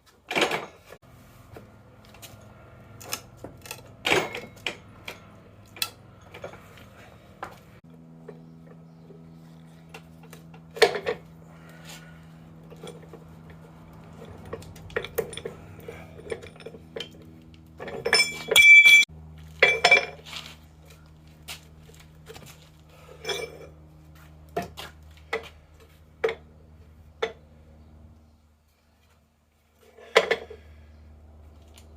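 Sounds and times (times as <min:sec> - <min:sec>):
steady low hum: 0:01.0 - 0:31.9
metal clinks and knocks: 0:02.0 - 0:07.6, 0:12.6 - 0:20.3
loud ringing metal clank: 0:03.6 - 0:06.6, 0:18.0 - 0:20.2.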